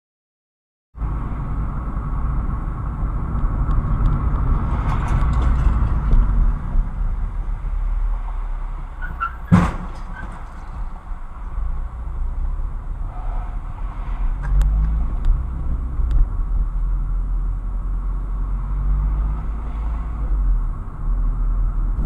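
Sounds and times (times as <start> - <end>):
car driving: 1.0 - 22.0.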